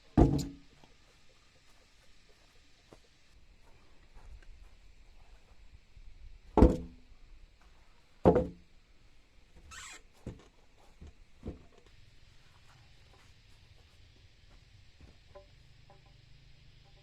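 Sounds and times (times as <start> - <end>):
heavy knocks on timber: 0.2 - 0.6, 6.6 - 7.0, 8.2 - 8.6.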